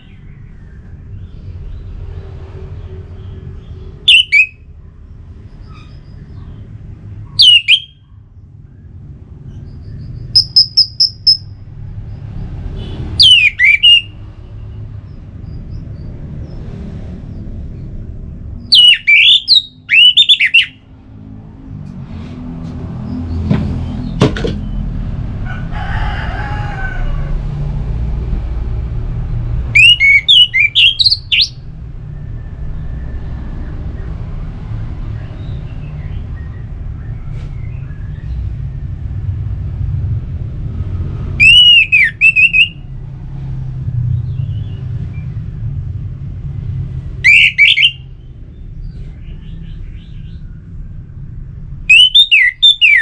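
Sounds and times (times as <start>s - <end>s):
thrush singing whistled notes: 4.0s - 4.7s, 7.4s - 8.0s, 10.3s - 11.6s, 13.2s - 14.6s, 18.6s - 20.8s, 29.7s - 31.6s, 41.4s - 42.9s, 47.2s - 48.2s, 51.9s - 53.0s.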